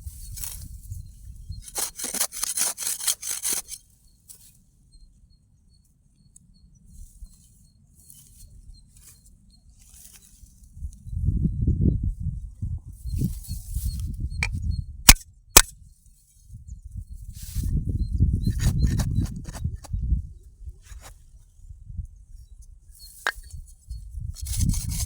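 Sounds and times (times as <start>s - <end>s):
rustling scraping strokes: 1.7s - 3.8s, 24.4s - 25.0s.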